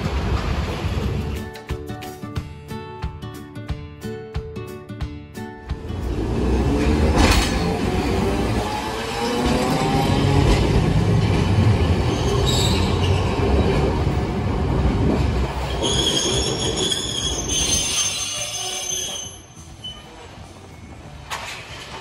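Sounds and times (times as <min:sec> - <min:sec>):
tram rumbling: 0:00.0 - 0:01.8, 0:05.6 - 0:22.0
steel wheels squealing on rails: 0:11.2 - 0:14.0, 0:15.5 - 0:22.0.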